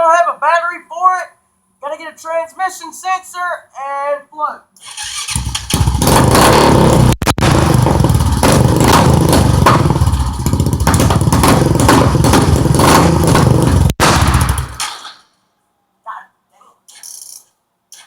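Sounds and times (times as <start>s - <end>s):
atv engine running: 5.4s - 14.8s.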